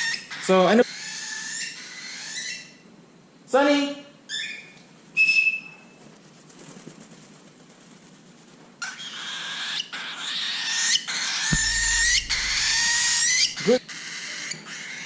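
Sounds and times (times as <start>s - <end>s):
cockatiel chirp: 8.8s - 15.0s
low rumble on microphone: 11.6s - 13.5s.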